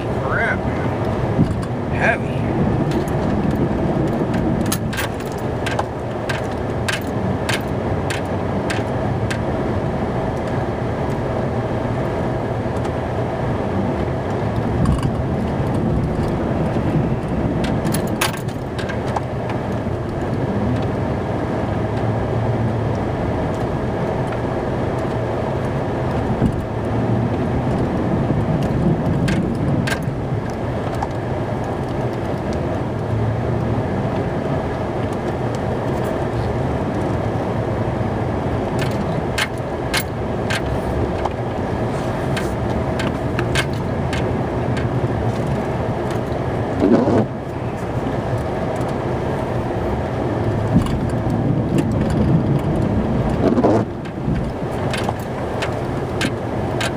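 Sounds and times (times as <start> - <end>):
truck engine and road rumble: 0.0 - 56.9
light clicks and rattles: 2.9 - 9.5, 14.0 - 21.0, 22.9 - 34.3, 38.5 - 56.9.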